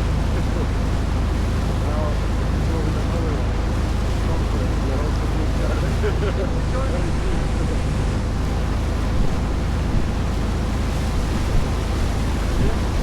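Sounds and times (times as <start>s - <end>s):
boat engine droning: 0.0s - 13.0s
water rushing past hull: 0.0s - 13.0s
wind on microphone: 6.5s - 13.0s.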